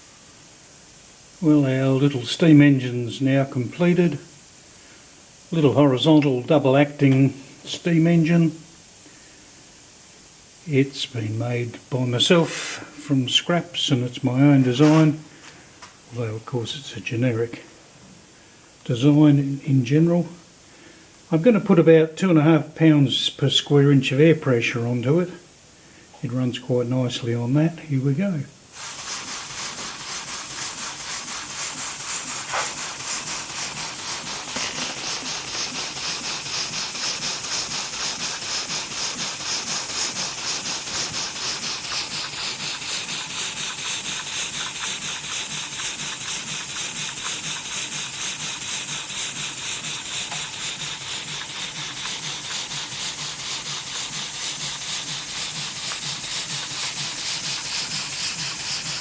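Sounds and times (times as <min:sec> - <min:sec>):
model steam engine puffing: 0:28.7 - 0:59.0.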